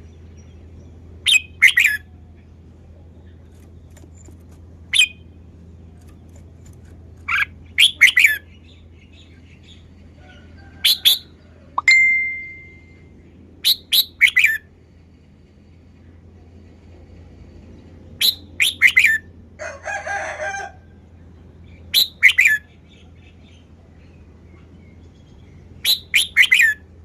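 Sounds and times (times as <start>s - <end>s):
bird chirping: 0.0s - 2.5s, 3.2s - 10.1s, 21.6s - 26.8s
steady ringing tone: 11.8s - 13.2s.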